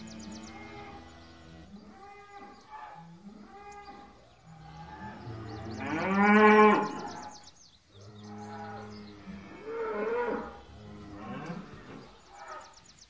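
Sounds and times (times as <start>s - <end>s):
cattle mooing: 4.9s - 7.2s.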